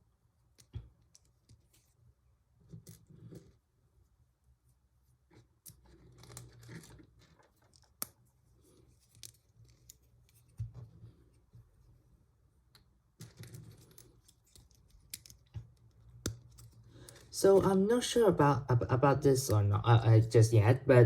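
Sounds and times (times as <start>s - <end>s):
plastic pieces clicking and rustling: 13.2s - 17.7s.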